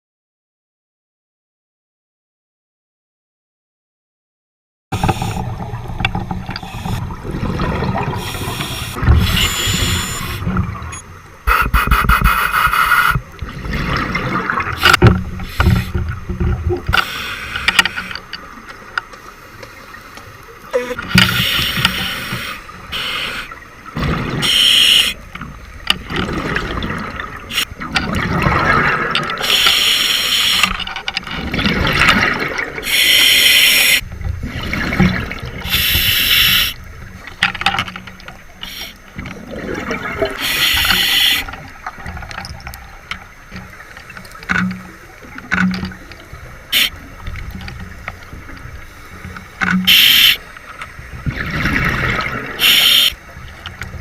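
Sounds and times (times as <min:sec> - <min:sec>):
water gurgling: 0:05.0 - 0:19.5, 0:20.4 - 0:54.0
diver exhaling bubbles: 0:06.7 - 0:10.9, 0:39.3 - 0:41.5, 0:51.3 - 0:53.1.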